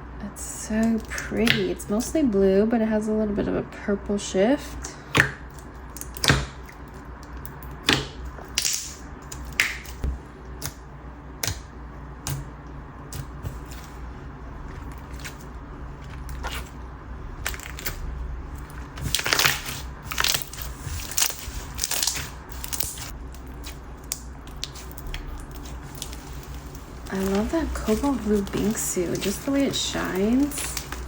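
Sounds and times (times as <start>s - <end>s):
slime beads crackling and popping: 18.6s - 31.0s.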